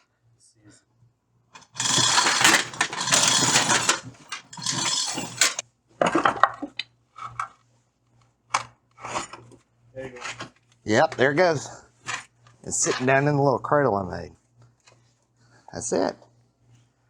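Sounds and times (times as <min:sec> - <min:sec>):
metal clanking and rattling: 0:01.6 - 0:05.6.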